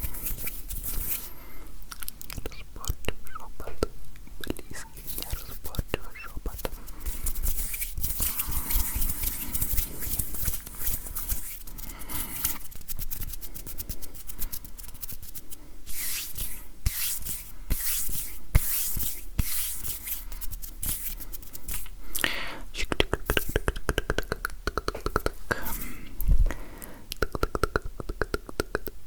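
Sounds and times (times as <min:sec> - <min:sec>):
hands rubbing together: 0:00.0 - 0:01.4, 0:04.7 - 0:21.9.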